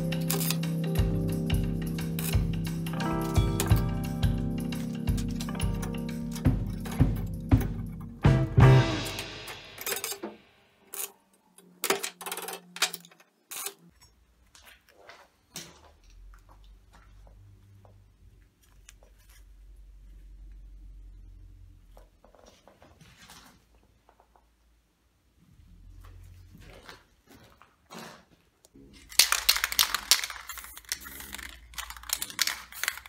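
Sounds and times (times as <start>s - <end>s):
small metal parts clinking: 0.0s - 0.9s, 2.0s - 3.8s, 4.8s - 8.1s, 9.8s - 14.2s, 29.0s - 33.0s.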